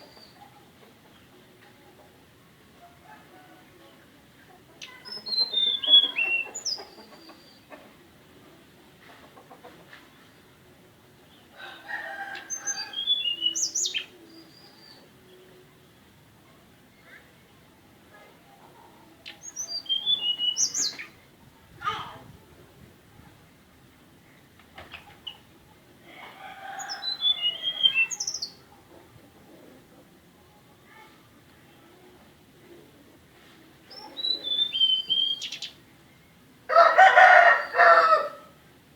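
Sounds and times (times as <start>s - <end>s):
clucking fowl-like bird call: 4.5s - 8.1s, 26.1s - 29.8s, 34.0s - 35.7s, 36.7s - 38.5s
rooster crowing: 11.6s - 13.4s, 26.2s - 28.2s, 36.7s - 38.5s
high whistled bird notes: 34.2s - 35.7s.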